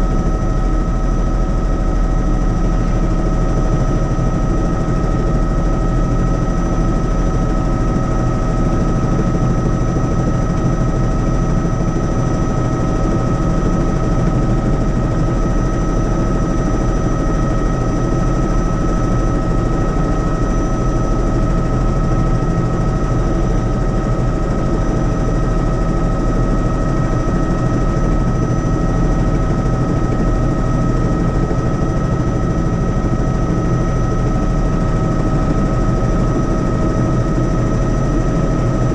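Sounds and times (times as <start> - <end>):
helicopter engine and rotors: 0.0 - 38.9.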